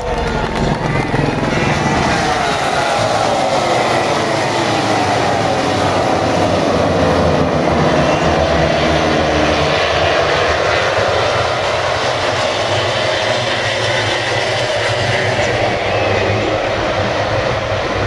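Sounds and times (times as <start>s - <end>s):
racing motorcycle engines at high revs: 0.0s - 18.0s.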